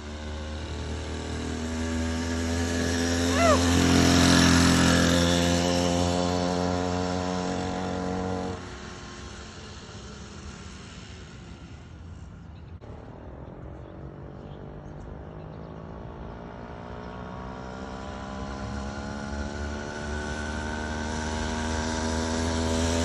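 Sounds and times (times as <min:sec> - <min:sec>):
small petrol engine running: 0:00.0 - 0:12.3.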